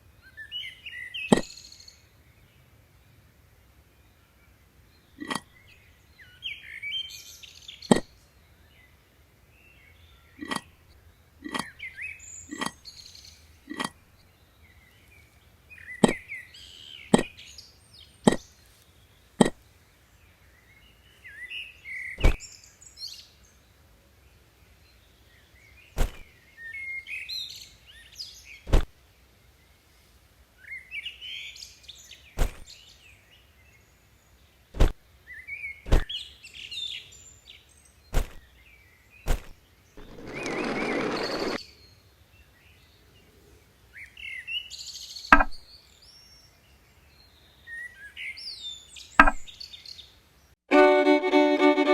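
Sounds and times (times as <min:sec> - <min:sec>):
birds chirping: 0:00.3 - 0:01.8, 0:05.0 - 0:08.2, 0:10.2 - 0:19.7, 0:20.3 - 0:22.9, 0:25.3 - 0:28.9, 0:38.0 - 0:41.9
sharp single knocks: 0:16.0 - 0:16.2, 0:17.1 - 0:17.4, 0:22.2 - 0:22.4, 0:26.0 - 0:26.3, 0:28.7 - 0:28.9, 0:32.4 - 0:32.7, 0:34.8 - 0:35.0, 0:35.9 - 0:36.1, 0:38.1 - 0:38.5, 0:39.3 - 0:39.6, 0:45.3 - 0:45.6, 0:49.2 - 0:49.5.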